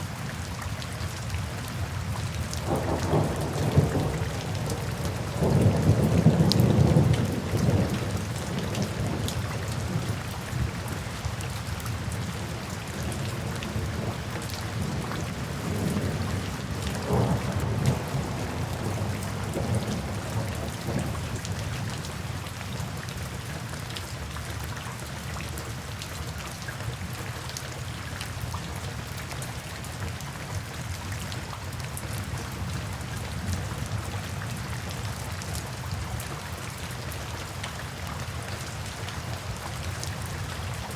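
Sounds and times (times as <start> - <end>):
steady rain: 0.0 - 40.9
low rolling thunder: 2.6 - 10.2, 13.1 - 22.0.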